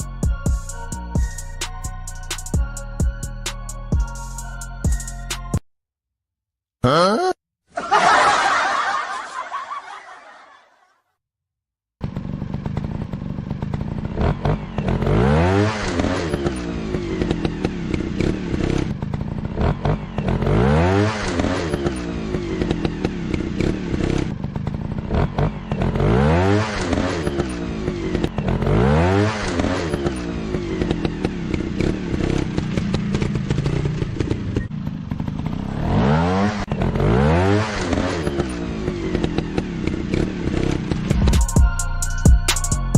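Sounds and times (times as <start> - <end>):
motorcycle engine revving: 12.0 - 41.7.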